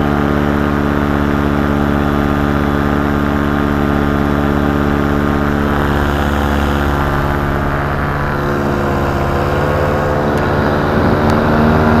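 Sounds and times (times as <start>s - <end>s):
paramotor engine and propeller: 0.0s - 12.0s.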